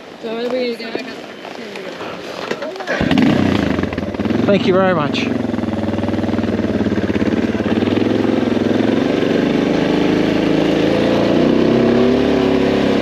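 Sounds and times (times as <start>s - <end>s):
motorcycle engine running: 2.8s - 13.0s.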